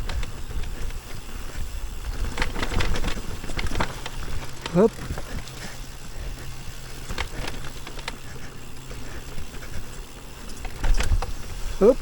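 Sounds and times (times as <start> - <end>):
bike knocks and rattles: 0.0 - 12.0
bike tyre trail noise: 0.0 - 12.0.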